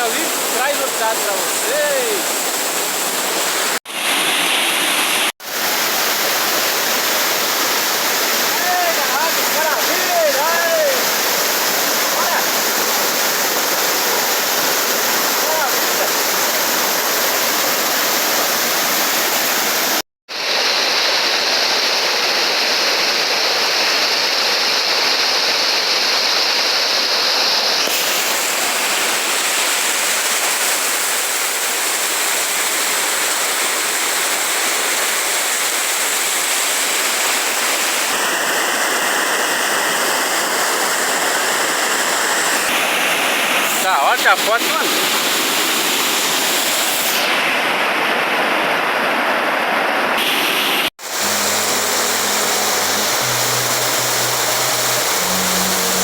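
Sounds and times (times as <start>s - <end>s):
waterfall rushing water: 0.0s - 56.0s.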